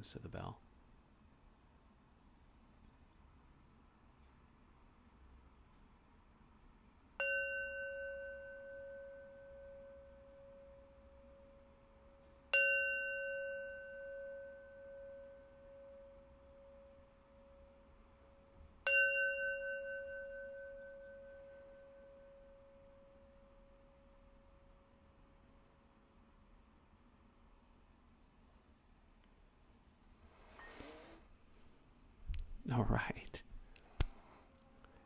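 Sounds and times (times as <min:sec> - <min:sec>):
meditation bell ringing: 0:07.2 - 0:24.8.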